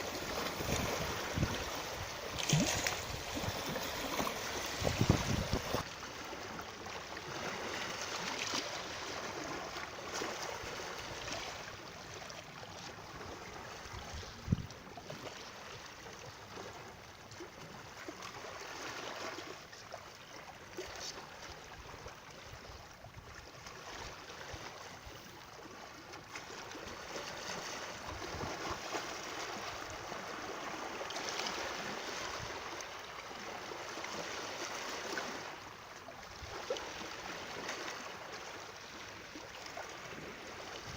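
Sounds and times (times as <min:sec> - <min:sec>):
water rushing: 0:00.0 - 0:06.5.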